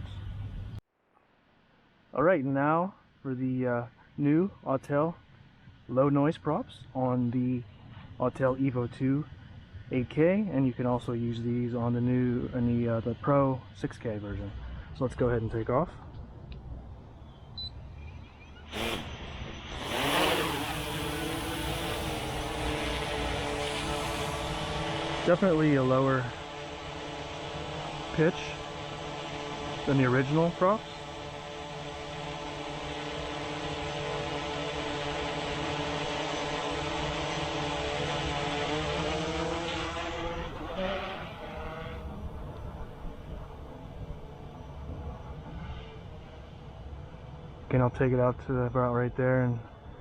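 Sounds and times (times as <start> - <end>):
drone rotors humming: 3.4 - 50.0
brief whirr: 17.5 - 43.4.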